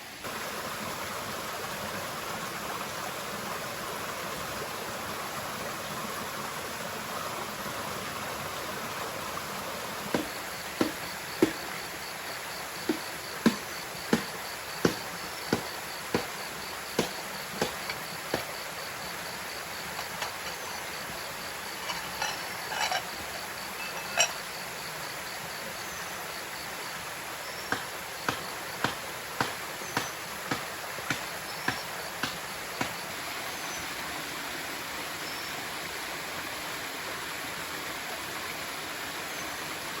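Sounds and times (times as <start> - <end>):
waterfall and stream rushing: 0.0 - 40.0
insects trilling: 0.2 - 35.8
sharp knocks: 10.1 - 11.6, 12.9 - 16.3, 17.0 - 18.5.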